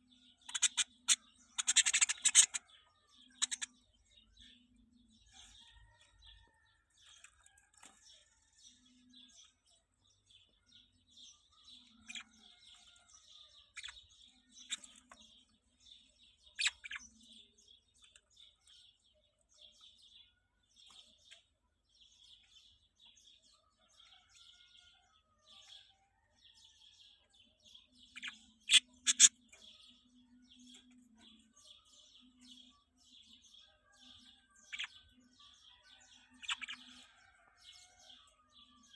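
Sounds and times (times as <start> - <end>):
loud sharp bird calls: 0.0 - 2.7
small birds chirping: 0.0 - 38.9.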